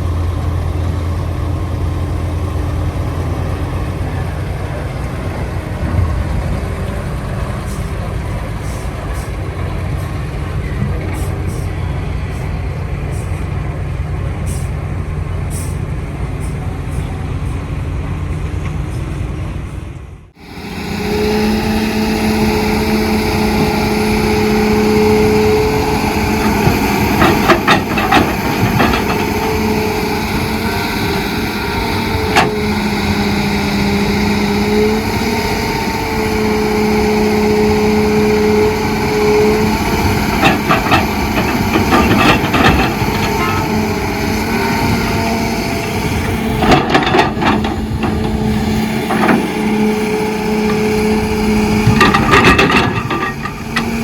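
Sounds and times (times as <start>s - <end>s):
heavy diesel machinery running: 0.0s - 54.0s
whine shifting in pitch: 20.4s - 26.5s
clattering and knocks: 26.4s - 30.0s, 40.2s - 43.8s, 46.6s - 49.6s, 51.8s - 54.0s.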